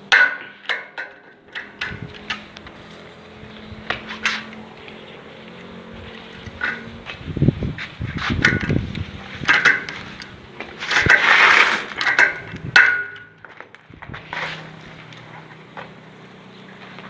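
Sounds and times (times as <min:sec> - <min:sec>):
knocks and scraping of materials: 0:00.0 - 0:16.0.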